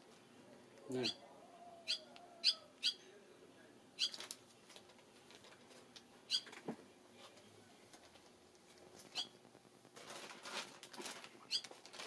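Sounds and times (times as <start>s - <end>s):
swallow chirping: 6.3s - 6.5s, 9.1s - 9.4s.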